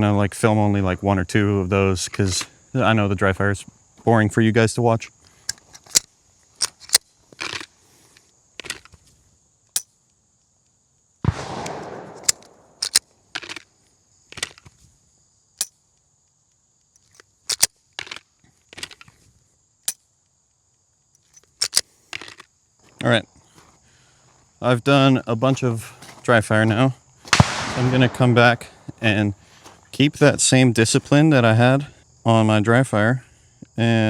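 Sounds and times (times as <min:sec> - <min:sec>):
handgun slide racking: 0:05.4 - 0:07.7, 0:08.6 - 0:09.0, 0:12.2 - 0:13.7, 0:17.0 - 0:19.1, 0:21.2 - 0:22.4
handgun trigger clicks: 0:05.4 - 0:07.7, 0:11.3 - 0:13.7, 0:17.0 - 0:19.1, 0:21.2 - 0:22.4
gunshot: 0:11.2 - 0:12.8, 0:27.3 - 0:28.9.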